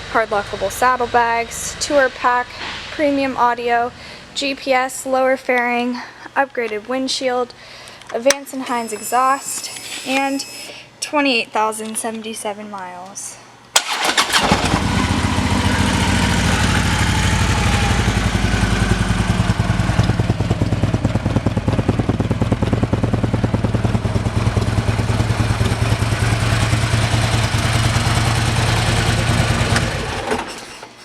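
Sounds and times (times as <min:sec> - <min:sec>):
motorcycle engine idling: 0:14.6 - 0:30.2.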